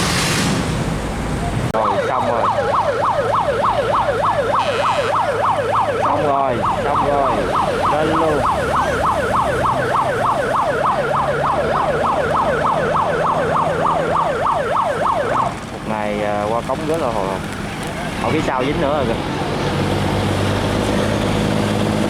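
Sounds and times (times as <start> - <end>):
electronic siren yelp: 1.8 - 15.6.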